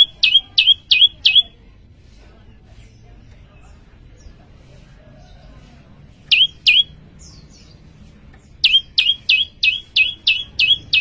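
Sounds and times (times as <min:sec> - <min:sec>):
songbird calling loudly: 0:00.0 - 0:01.5, 0:06.3 - 0:06.9, 0:08.6 - 0:11.0
faint bird chirps: 0:00.0 - 0:01.6, 0:06.3 - 0:07.8, 0:08.4 - 0:11.0.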